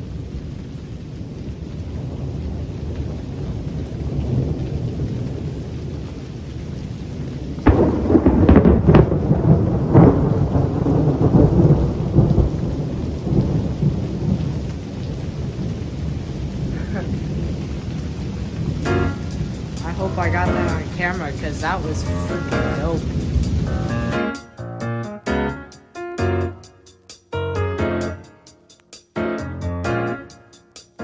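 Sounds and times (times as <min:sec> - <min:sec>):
thunder rumbling and cracking: 0:00.0 - 0:24.2
steady rain: 0:00.0 - 0:25.6, 0:27.8 - 0:31.0.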